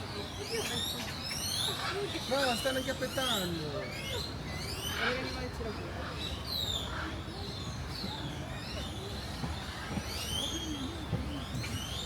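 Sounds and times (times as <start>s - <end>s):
faint voices: 0.0s - 12.0s
low traffic rumble: 0.0s - 12.0s.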